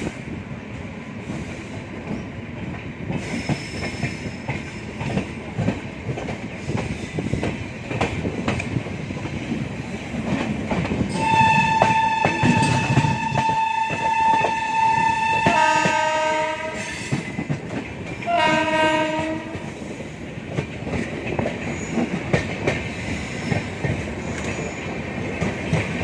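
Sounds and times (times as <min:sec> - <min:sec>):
train wheels clattering: 0:01.2 - 0:26.0
train horn blast: 0:11.1 - 0:17.0, 0:18.2 - 0:19.7.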